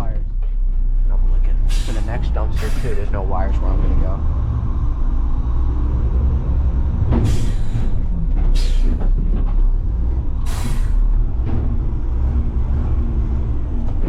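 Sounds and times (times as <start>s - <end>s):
truck diesel engine rumbling: 0.0s - 14.0s
compressed air hisses: 1.7s - 3.0s, 10.5s - 11.0s.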